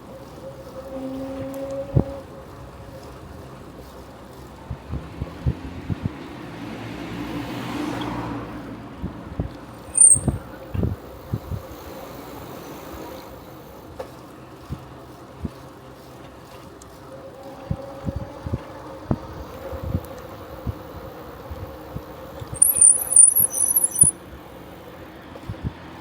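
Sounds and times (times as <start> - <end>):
bicycle rolling noise: 0.0 - 6.6, 8.6 - 26.0
wind: 0.0 - 26.0
car passing: 6.4 - 9.0.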